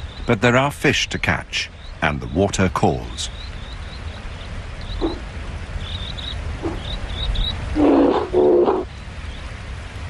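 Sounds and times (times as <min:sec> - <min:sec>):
faint bird chirps: 0:01.5 - 0:09.5.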